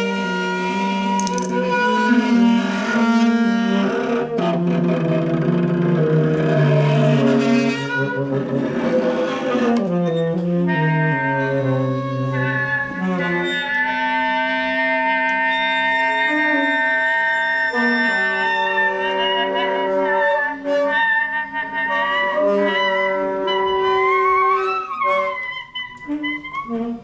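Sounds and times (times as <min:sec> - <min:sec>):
wind and brass ensemble playing: 0:09.5 - 0:27.0.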